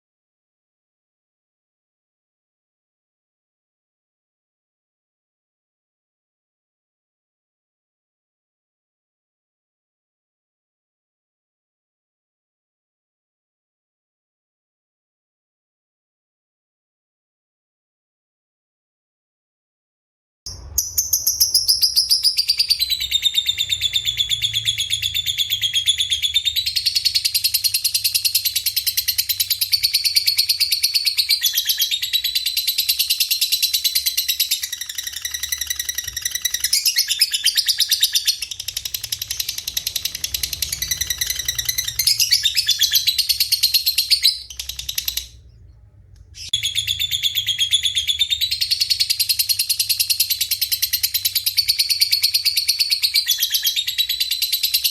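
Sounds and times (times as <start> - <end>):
birds chirping and trilling: 20.5 - 54.9.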